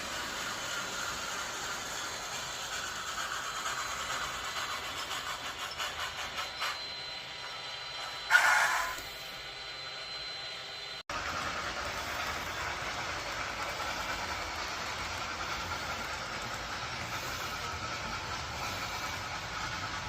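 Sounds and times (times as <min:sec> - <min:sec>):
train rumbling: 0:00.0 - 0:06.9, 0:11.1 - 0:20.0.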